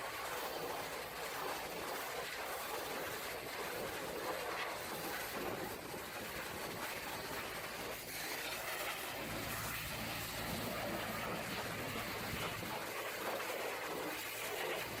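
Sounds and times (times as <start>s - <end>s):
low steady hum: 7.2s - 13.4s.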